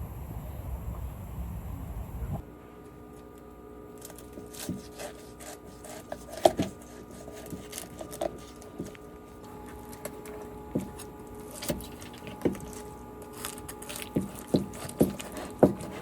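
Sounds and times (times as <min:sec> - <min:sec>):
steady hum: 0:00.0 - 0:16.0
knocks and scraping on wood: 0:04.0 - 0:16.0.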